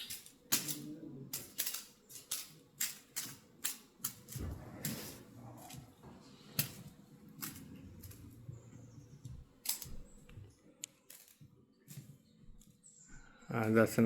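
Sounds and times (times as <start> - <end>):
handling clicks and rustling: 0.0 - 12.8
faint low rumble: 4.4 - 6.4.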